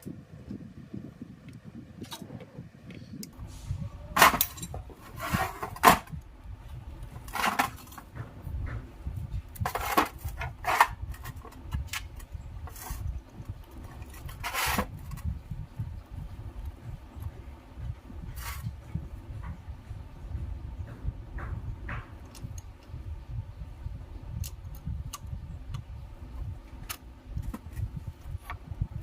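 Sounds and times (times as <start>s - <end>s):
low steady rumble: 0.0s - 29.0s.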